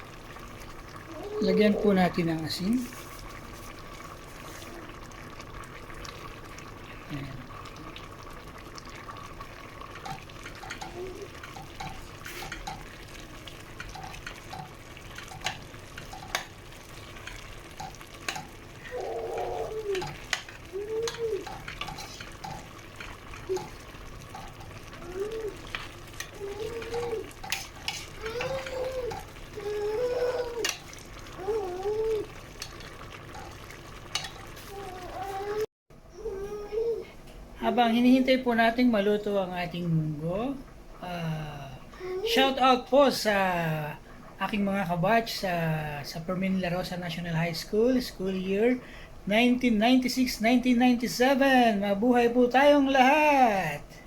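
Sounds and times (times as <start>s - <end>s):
stew bubbling: 0.0s - 37.0s.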